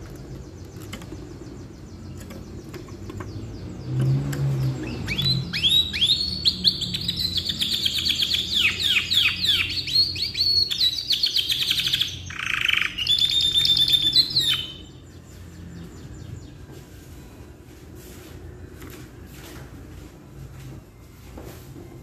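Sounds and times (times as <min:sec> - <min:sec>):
canary singing: 0:00.0 - 0:16.7.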